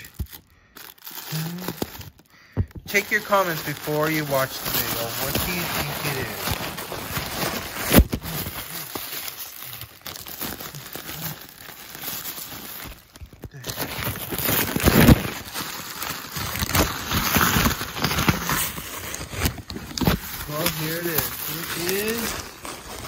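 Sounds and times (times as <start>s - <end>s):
packaging crinkling and tearing: 0.0s - 23.0s
sharp loud rips: 20.4s - 22.2s.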